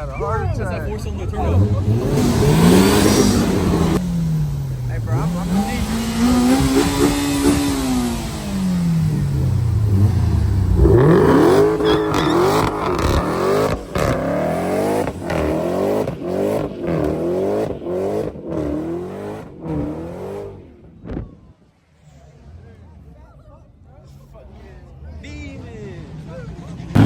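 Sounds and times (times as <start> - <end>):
car engine revving in blips: 1.0 - 21.6, 26.8 - 27.0.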